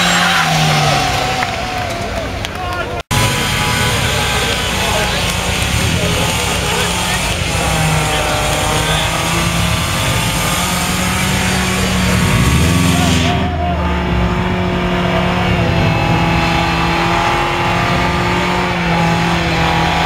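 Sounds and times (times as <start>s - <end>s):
car engine at high revs: 0.0s - 20.0s
tyres spinning: 0.0s - 20.0s.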